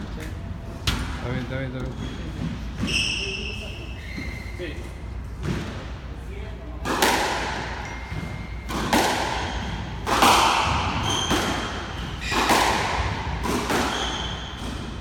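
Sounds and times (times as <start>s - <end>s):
shoe squeaks: 1.8s - 5.1s, 7.8s - 8.7s, 10.9s - 12.6s, 13.7s - 15.0s
squash ball hits: 6.8s - 15.0s.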